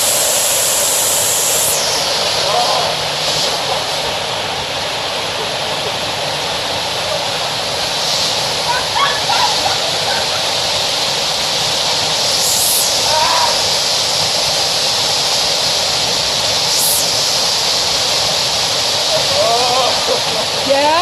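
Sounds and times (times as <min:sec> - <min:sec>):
waterfall rushing: 0:00.0 - 0:21.0
brief higher hisses: 0:12.2 - 0:14.4.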